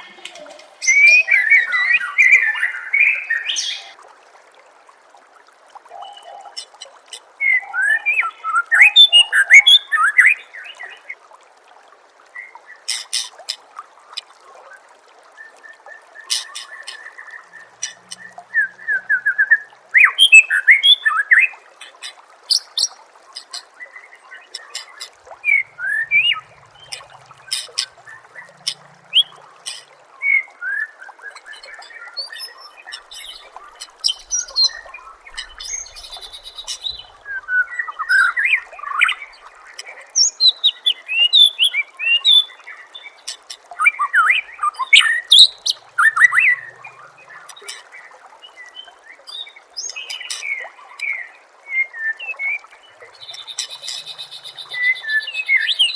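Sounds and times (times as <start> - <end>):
water trickling: 0.0 - 55.9
bird singing whistles and trills: 0.8 - 3.9, 15.4 - 21.5, 53.2 - 55.9.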